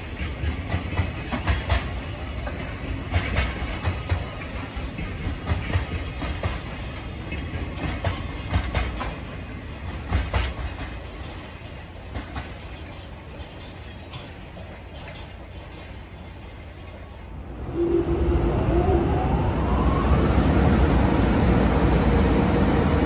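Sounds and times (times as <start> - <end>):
wheels clacking over rail joints: 0.0 - 17.4
train rumble: 0.0 - 23.0.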